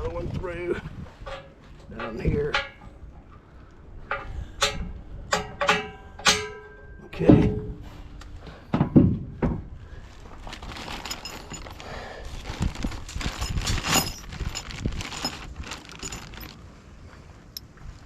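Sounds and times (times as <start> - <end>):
steel hardware clinking: 10.9 - 11.8, 13.2 - 16.6.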